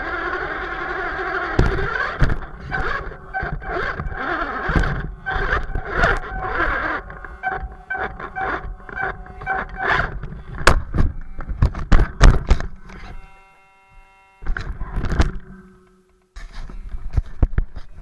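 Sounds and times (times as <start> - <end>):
toy car knocking and scraping: 0.0 - 13.2
steady whine: 0.0 - 18.0.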